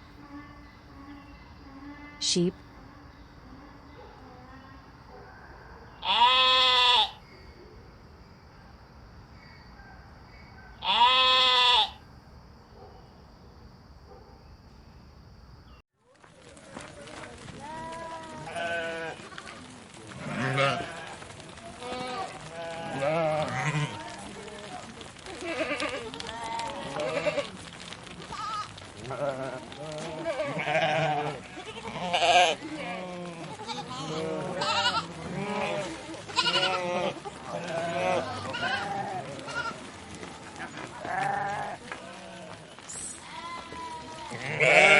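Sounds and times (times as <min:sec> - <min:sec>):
sheep bleating: 0:06.0 - 0:07.2, 0:10.8 - 0:12.0, 0:17.6 - 0:27.5, 0:28.3 - 0:39.9, 0:40.6 - 0:44.9.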